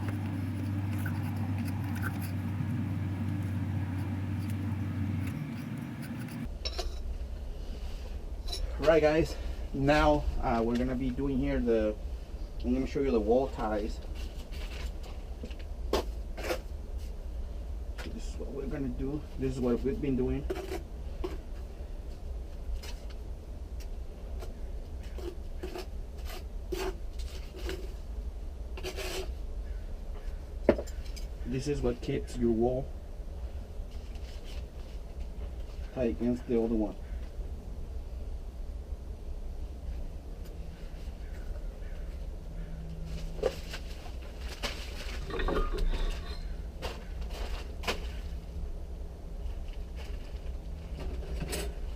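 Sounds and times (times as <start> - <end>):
scraping and rubbing strokes: 0.0 - 6.5
steady low hum: 0.0 - 6.5.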